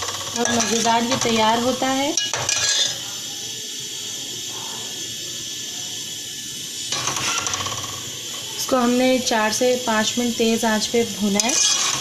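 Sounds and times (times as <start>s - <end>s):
food sizzling in a pot: 0.0s - 12.0s
ladle scraping and stirring: 11.4s - 12.0s.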